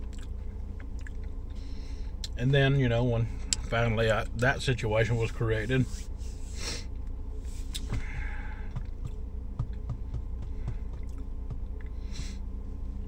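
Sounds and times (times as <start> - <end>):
person chewing food: 0.0 - 1.6, 10.6 - 12.0
steady low hum: 0.0 - 13.0
breathing: 1.5 - 2.2, 6.4 - 8.8, 10.4 - 11.0, 11.9 - 12.5.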